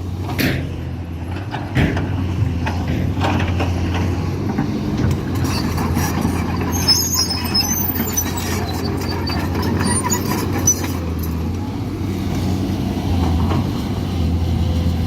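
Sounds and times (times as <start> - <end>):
excavator diesel engine running: 0.0 - 15.0
sharp knocks and clanks: 1.4 - 5.9
thin high squeal: 6.6 - 11.4.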